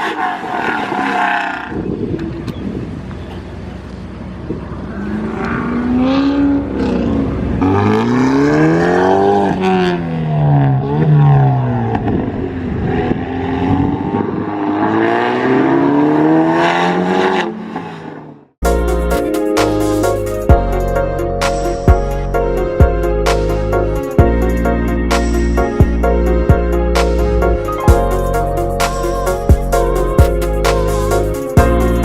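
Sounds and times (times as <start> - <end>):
car engine revving: 4.5 - 20.4.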